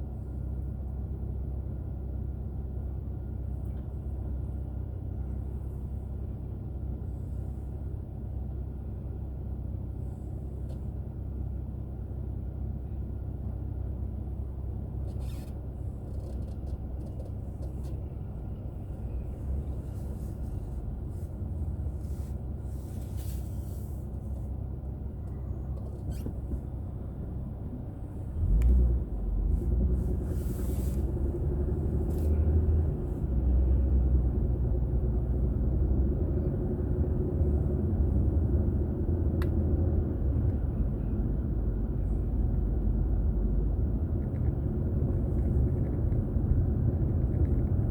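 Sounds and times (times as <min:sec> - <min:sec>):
road noise inside car: 0:00.0 - 0:47.9
car engine accelerating: 0:28.0 - 0:40.7.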